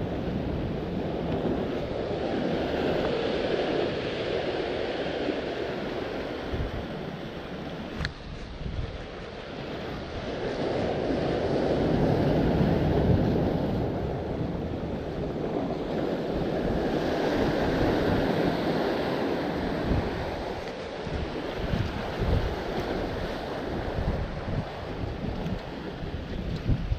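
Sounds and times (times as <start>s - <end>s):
ocean surf washing in: 0.0s - 26.9s
wind buffeting the microphone: 0.0s - 26.9s.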